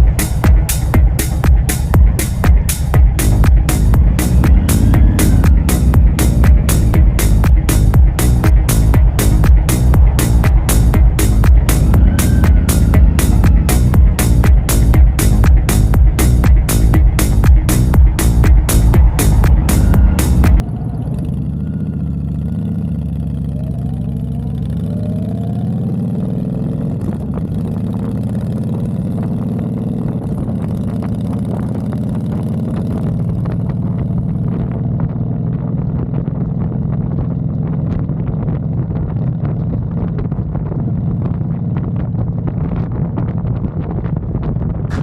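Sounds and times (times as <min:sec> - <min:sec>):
motorcycle engine accelerating: 0:00.0 - 0:45.0.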